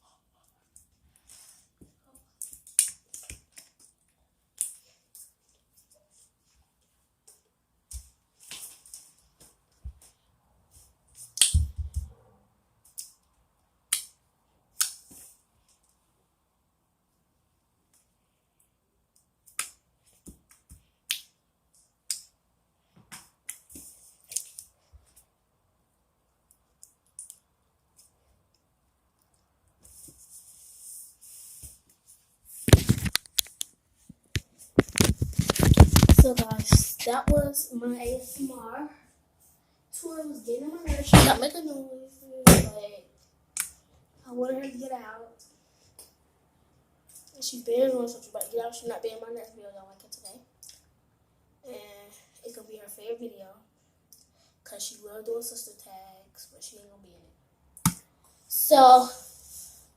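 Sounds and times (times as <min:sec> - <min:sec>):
faint hiss: 0:29.8 - 0:32.7, 0:58.3 - 0:59.9
sharp crackles and pops: 0:34.7 - 0:37.5.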